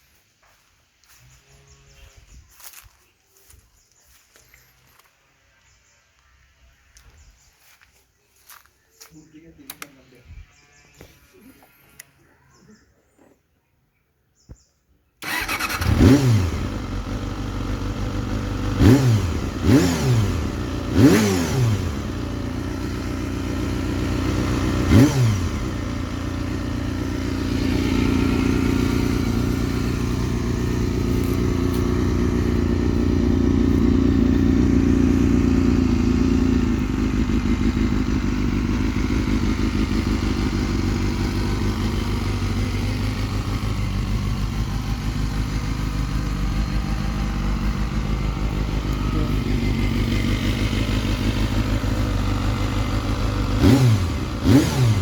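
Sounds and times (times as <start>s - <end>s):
motorcycle engine idling: 15.2s - 55.0s
motorcycle engine revving: 15.2s - 55.0s.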